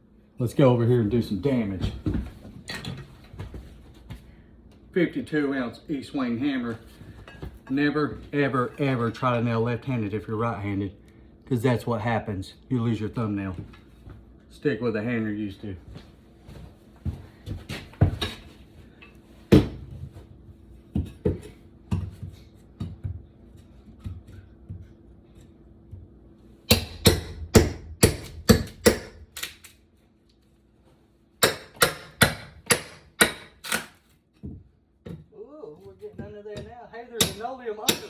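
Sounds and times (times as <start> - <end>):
hammer striking: 26.7 - 29.2, 31.4 - 33.9, 36.6 - 38.0.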